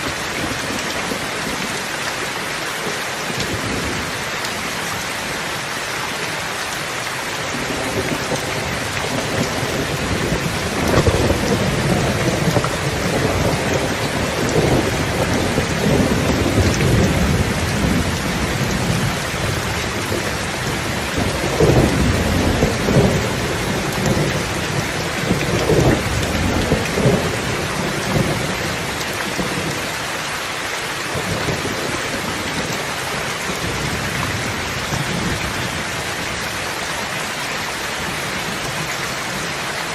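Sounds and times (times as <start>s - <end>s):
steady rain: 0.0s - 39.9s
rolling thunder: 7.6s - 29.8s.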